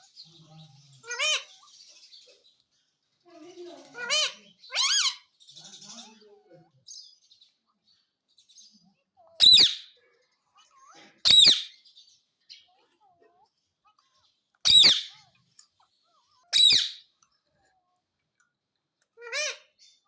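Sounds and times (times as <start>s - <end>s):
parrot high-pitched calls: 1.0s - 1.9s, 3.9s - 5.3s, 9.3s - 10.0s, 10.6s - 11.8s, 14.6s - 15.4s, 16.2s - 17.1s, 19.2s - 20.0s.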